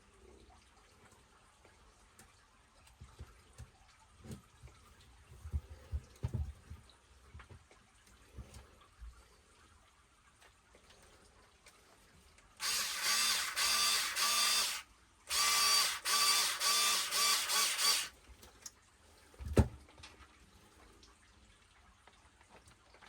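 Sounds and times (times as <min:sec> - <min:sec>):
power driver whirring: 0:12.6 - 0:18.1.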